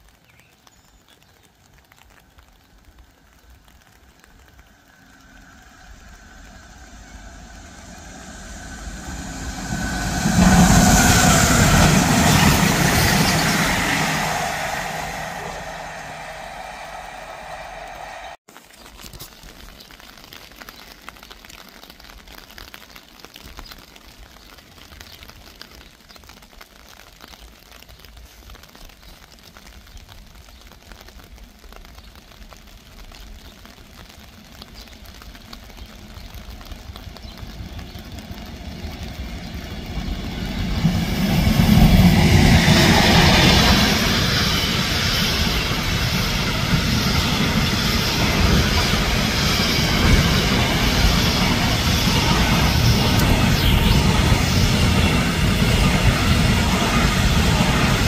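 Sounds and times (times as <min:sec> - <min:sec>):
wheels rumbling on rails: 0:01.2 - 0:18.4, 0:32.1 - 0:58.0
freight train passing: 0:04.5 - 0:18.4, 0:36.2 - 0:58.0.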